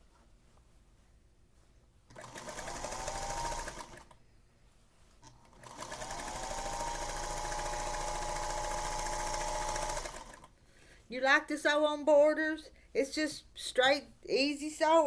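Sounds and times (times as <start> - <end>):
sewing machine motor whine: 2.1 - 4.1, 5.6 - 10.5.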